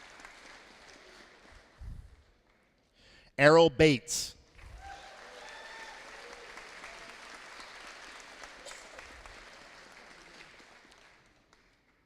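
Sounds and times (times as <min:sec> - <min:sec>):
audience applauding: 0:00.0 - 0:01.8, 0:04.8 - 0:11.9.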